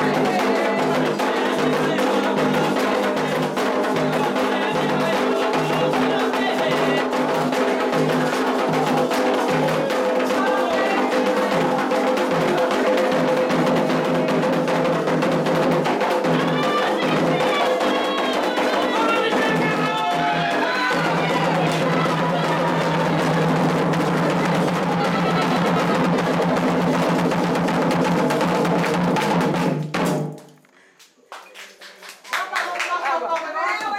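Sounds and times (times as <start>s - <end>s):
hand drums playing rhythm: 0.0s - 30.4s
struck percussion pattern: 0.0s - 30.5s.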